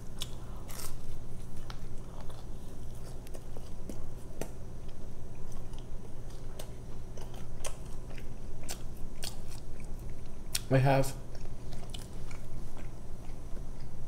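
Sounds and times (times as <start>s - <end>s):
chewing pizza crust: 0.0s - 14.0s.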